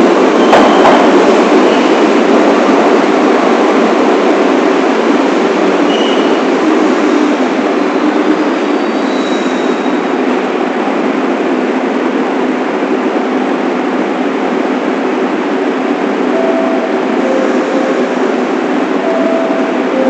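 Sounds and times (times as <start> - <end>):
subway train rumbling: 0.0 - 20.0
faint high squeal: 5.9 - 6.4.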